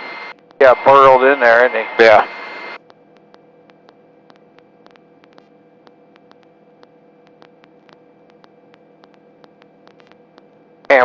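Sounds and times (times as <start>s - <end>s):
static clicks: 0.0s - 1.4s, 2.1s - 11.0s
electrical hum and hiss: 0.0s - 11.0s.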